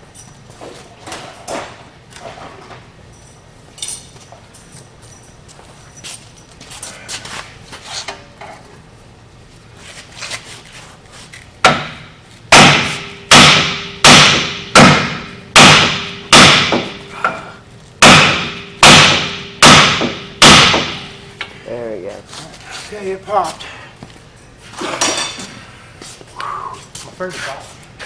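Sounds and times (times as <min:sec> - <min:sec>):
light metal clinking: 0:03.1 - 0:07.0
hammer pounding metal hub: 0:11.6 - 0:21.6.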